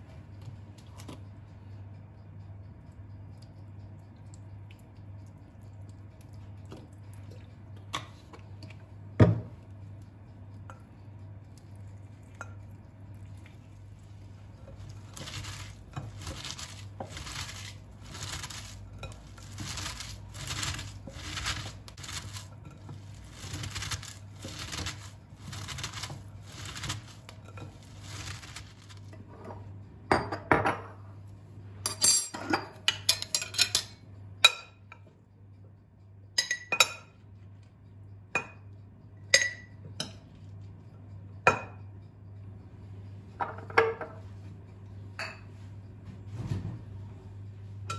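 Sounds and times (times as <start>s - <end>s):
steady low hum: 0.0s - 47.9s
dishes and cutlery clattering: 31.9s - 34.8s.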